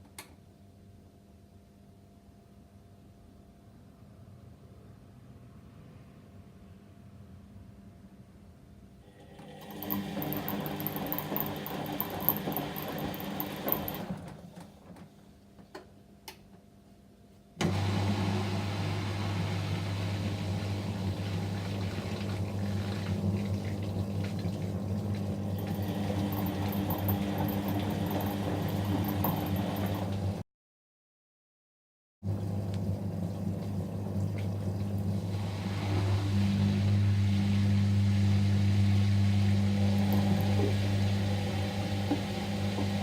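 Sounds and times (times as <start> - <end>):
washing machine drum motor: 9.3 - 15.1, 17.6 - 30.4, 32.2 - 43.0.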